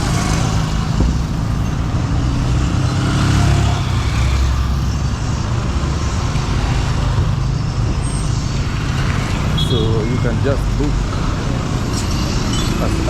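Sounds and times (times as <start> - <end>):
road noise: 0.0 - 13.0
vehicle engines running: 0.0 - 13.0.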